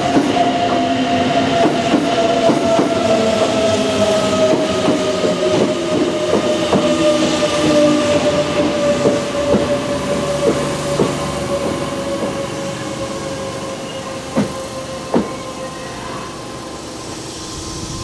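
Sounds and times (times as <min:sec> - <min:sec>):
electric train whine: 0:00.0 - 0:18.0
train wheels clacking over rail joints: 0:01.5 - 0:12.6, 0:14.2 - 0:15.5.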